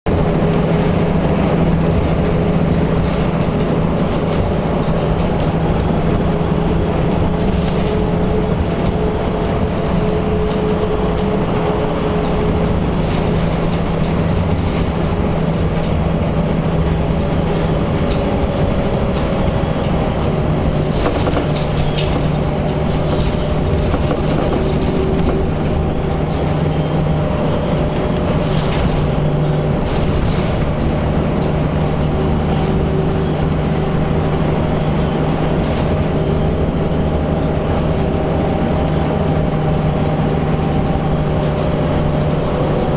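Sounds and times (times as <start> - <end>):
road noise: 0.0 - 42.9
vehicle engine hum: 0.0 - 42.9.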